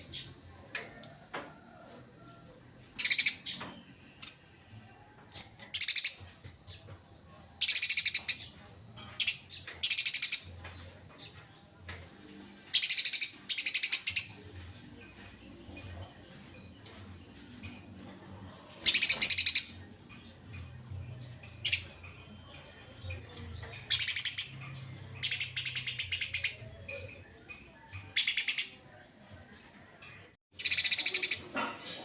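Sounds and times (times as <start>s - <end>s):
sparrow harsh chattering: 23.8s - 24.6s, 30.6s - 31.5s.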